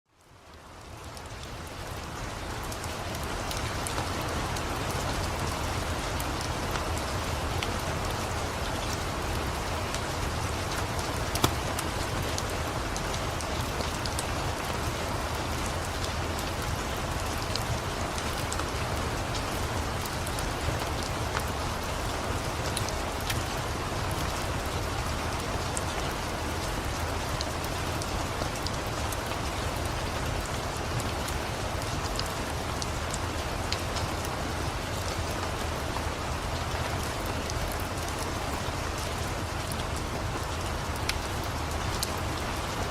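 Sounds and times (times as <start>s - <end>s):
steady rain: 0.1s - 42.9s
wood fire crackling: 9.9s - 14.7s.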